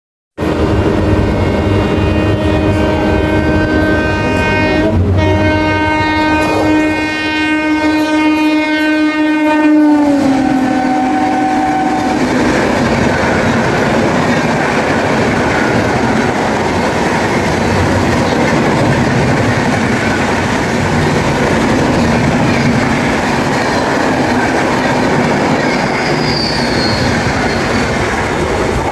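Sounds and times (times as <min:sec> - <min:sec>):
locomotive horn chord: 0:00.4 - 0:12.4
train coaches rushing past: 0:00.4 - 0:28.9.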